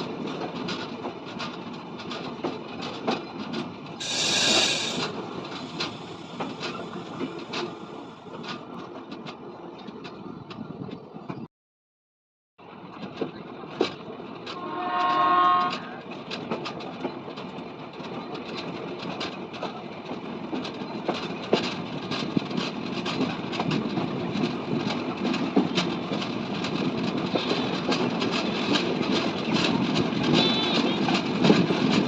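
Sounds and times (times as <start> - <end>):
train wheels clattering over rails: 0.0 - 11.5, 12.6 - 32.0
train horn blaring: 14.6 - 16.0, 30.3 - 31.1.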